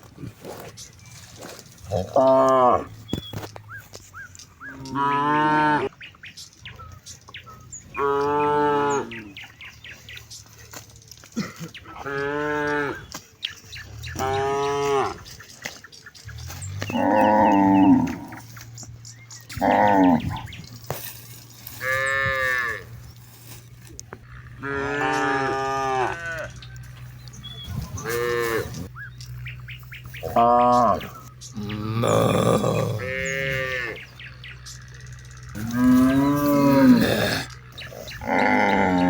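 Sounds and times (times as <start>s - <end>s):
cattle mooing: 1.9s - 3.0s, 4.7s - 5.9s, 7.9s - 9.4s, 11.9s - 13.1s, 14.0s - 15.4s, 16.4s - 18.6s, 19.5s - 20.6s, 24.2s - 28.9s, 30.1s - 39.0s.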